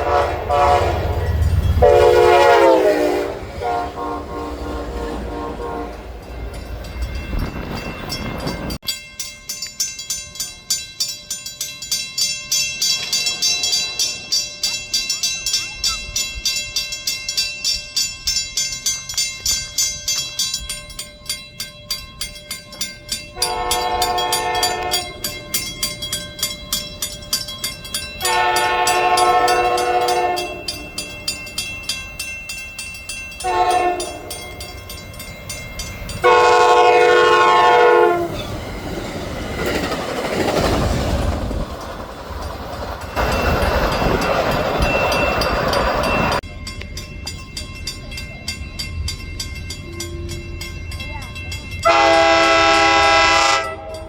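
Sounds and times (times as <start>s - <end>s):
train air horn blasts: 0.0s - 6.1s, 23.4s - 25.2s, 28.2s - 30.8s, 33.4s - 34.4s, 36.2s - 38.4s, 51.8s - 54.0s
train wheels clicking over rails: 38.0s - 47.4s.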